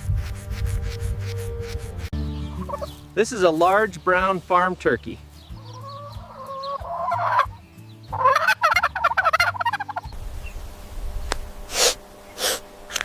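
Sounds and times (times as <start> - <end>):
turkey gobbling: 2.6 - 3.0, 5.6 - 10.1.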